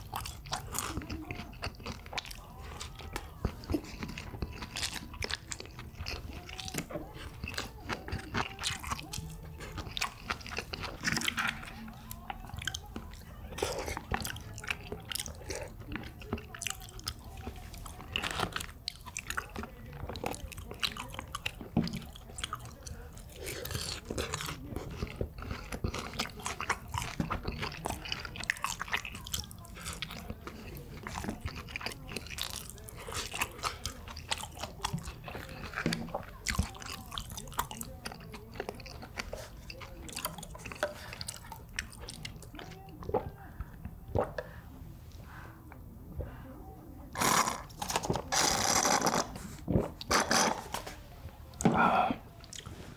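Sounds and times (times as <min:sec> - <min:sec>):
person chewing crunchy food: 0:00.0 - 0:43.5, 0:47.1 - 0:52.9
wet mouth clicks: 0:44.1 - 0:44.6.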